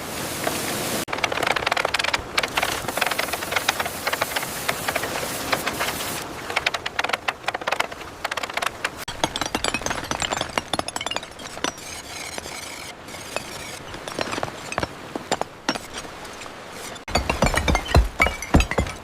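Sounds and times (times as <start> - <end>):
construction knocks and clicks: 0.4 - 16.0
hiss: 2.6 - 6.2.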